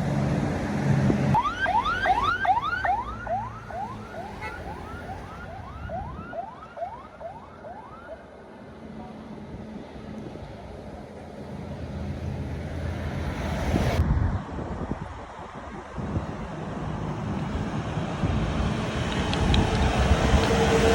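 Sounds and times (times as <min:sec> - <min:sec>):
engine rumble: 0:00.0 - 0:06.3, 0:07.6 - 0:20.9
vehicle siren horn whooping: 0:01.4 - 0:07.5.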